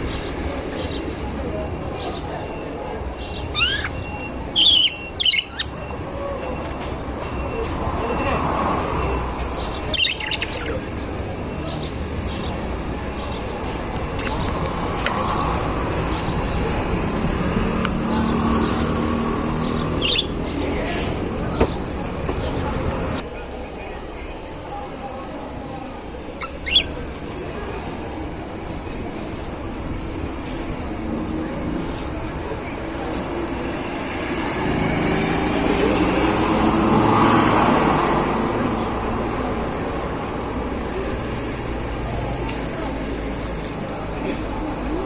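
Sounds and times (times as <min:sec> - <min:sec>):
road traffic noise: 0:00.0 - 0:45.0
budgerigars chirping faintly: 0:03.2 - 0:05.9, 0:09.6 - 0:13.6, 0:19.5 - 0:20.7, 0:26.4 - 0:27.0
vehicle passing: 0:07.8 - 0:23.2, 0:33.5 - 0:43.6.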